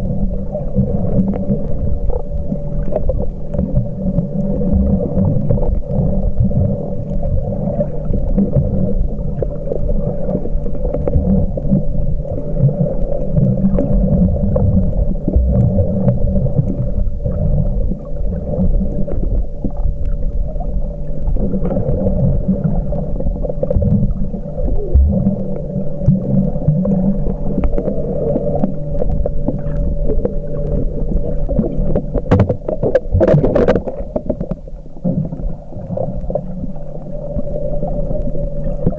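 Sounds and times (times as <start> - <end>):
constant hum: 0.0 - 38.9
muffled underwater rumble: 0.0 - 38.9.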